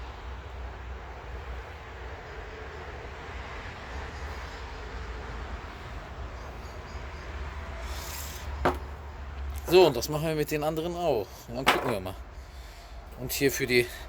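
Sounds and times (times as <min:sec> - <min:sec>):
sharp knock: 0:08.7 - 0:09.0.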